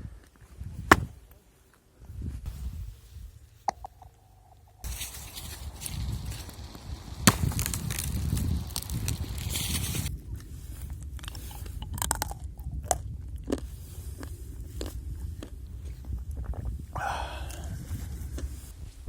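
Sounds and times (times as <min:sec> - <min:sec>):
thin ice crunching and cracking: 0:04.8 - 0:10.1.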